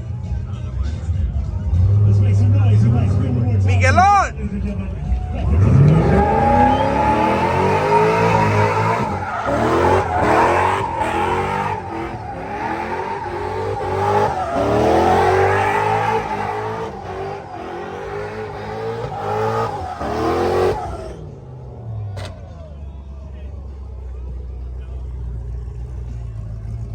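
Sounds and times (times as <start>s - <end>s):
tyres squealing: 5.3s - 21.2s
engine revving hard: 5.3s - 21.7s.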